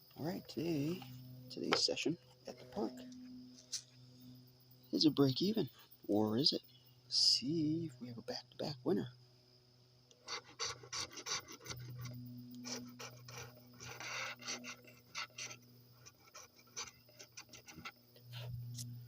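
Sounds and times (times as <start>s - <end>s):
scratching lottery ticket: 10.2s - 18.5s.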